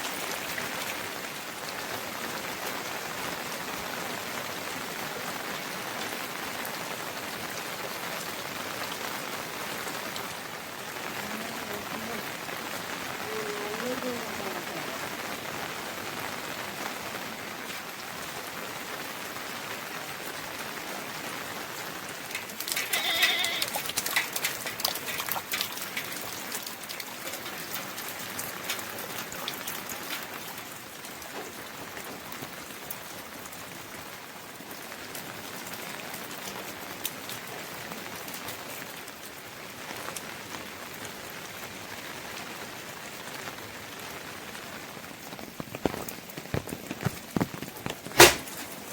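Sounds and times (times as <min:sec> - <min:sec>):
rain pattering: 0:00.0 - 0:48.9
sharp drips and taps: 0:22.1 - 0:32.1, 0:45.6 - 0:48.7.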